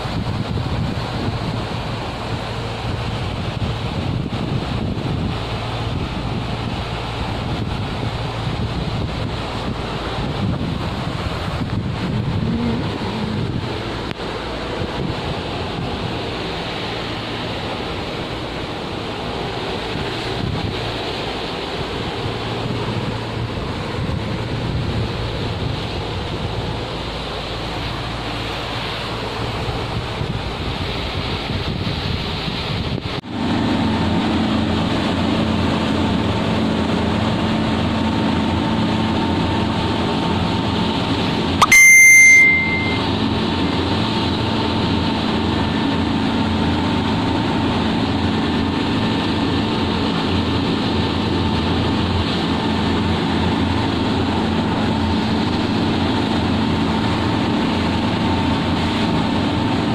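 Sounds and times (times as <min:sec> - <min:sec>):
steady motor hum: 0:00.0 - 0:41.7, 0:42.6 - 0:59.9
water: 0:00.0 - 0:59.9
wind: 0:00.0 - 0:59.9
loud high ringing tone: 0:41.5 - 0:43.5.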